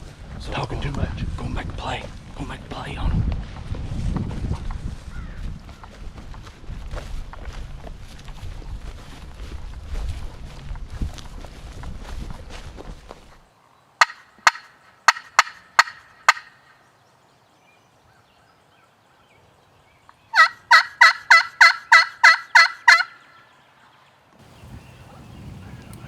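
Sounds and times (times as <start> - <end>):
turkey call clucks: 14.0 - 16.8, 20.3 - 23.5
turkey call yelps: 14.0 - 16.8, 20.3 - 23.5.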